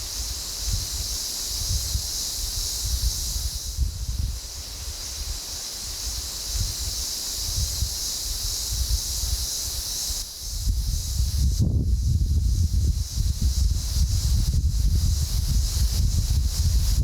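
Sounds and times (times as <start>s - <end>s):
hiss of wind-blown grass: 0.0s - 17.0s
wind buffeting microphone: 10.4s - 17.0s.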